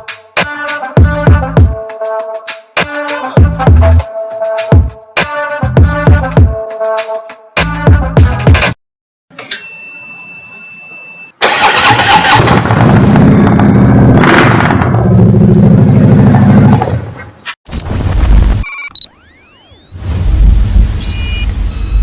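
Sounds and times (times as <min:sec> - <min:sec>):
motorcycle engine starting: 0:11.4 - 0:17.0.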